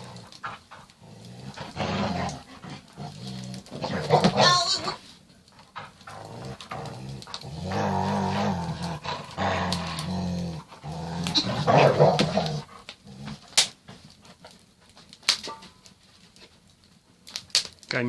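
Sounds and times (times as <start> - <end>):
dog growling: 0.0 - 13.6.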